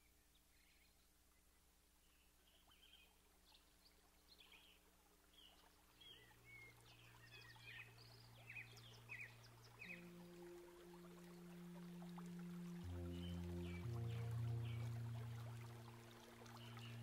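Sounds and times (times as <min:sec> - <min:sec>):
birds chirping and twittering: 0:00.0 - 0:17.0
low steady hum: 0:04.8 - 0:17.0.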